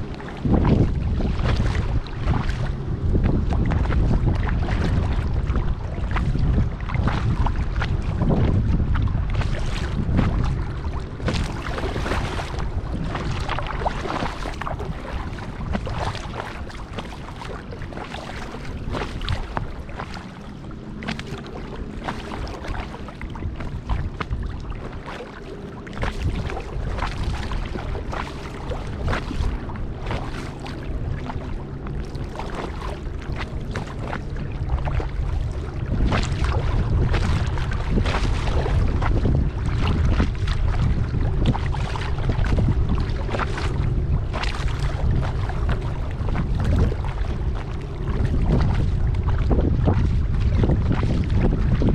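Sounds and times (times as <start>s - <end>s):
kayak paddle splashing: 0.0s - 51.9s
water lapping at hull: 0.0s - 51.9s
wind on microphone: 0.0s - 51.9s.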